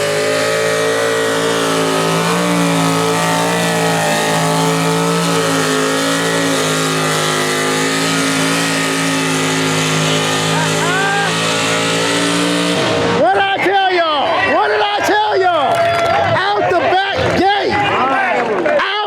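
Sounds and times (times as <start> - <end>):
engine running at high revs: 0.0 - 13.4.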